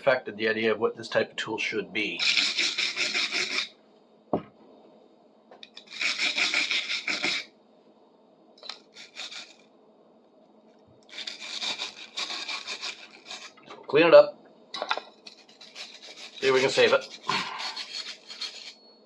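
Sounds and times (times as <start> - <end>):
rust scrubbing rasping strokes: 15.2 - 18.8.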